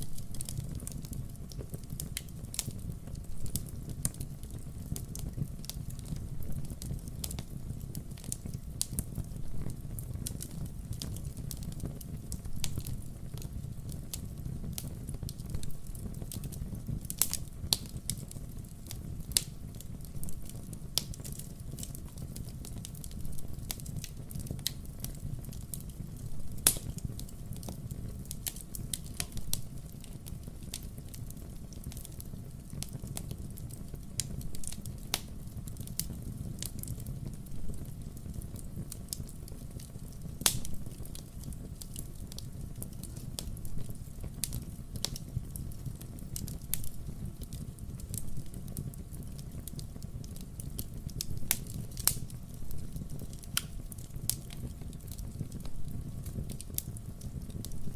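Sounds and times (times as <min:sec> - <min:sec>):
wood fire crackling: 0:00.0 - 0:57.9
sharp pops and snaps: 0:40.4 - 0:40.8, 0:52.9 - 0:56.9.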